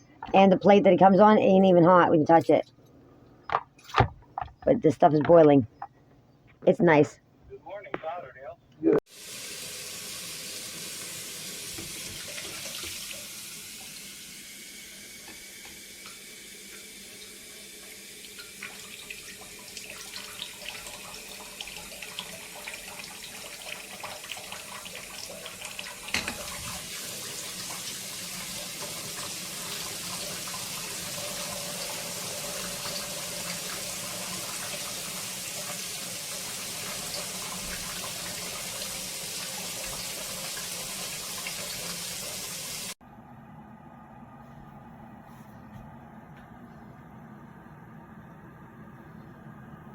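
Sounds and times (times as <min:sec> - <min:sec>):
water boiling in electric kettle: 0:09.1 - 0:43.0.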